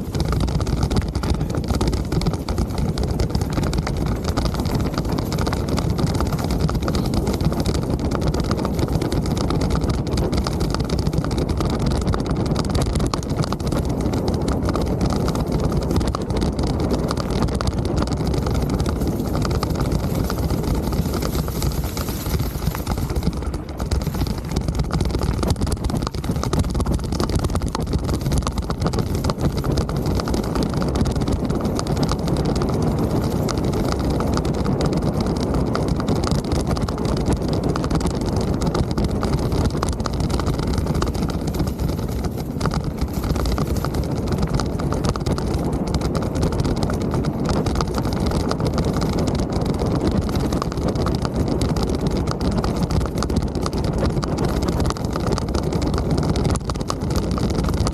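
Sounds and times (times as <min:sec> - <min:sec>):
wind buffeting microphone: 0:00.0 - 0:55.5
bike tyres rolling on trail: 0:00.0 - 0:56.7.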